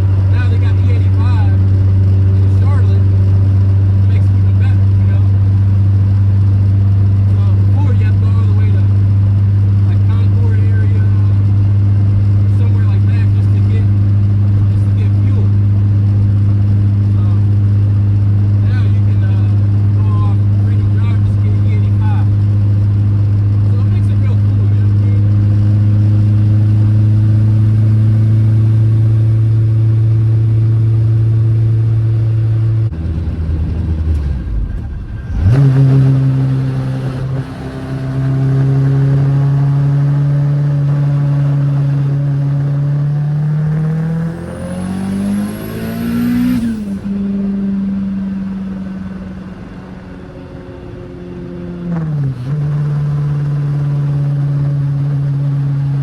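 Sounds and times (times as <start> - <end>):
car engine running: 0.0 - 56.0.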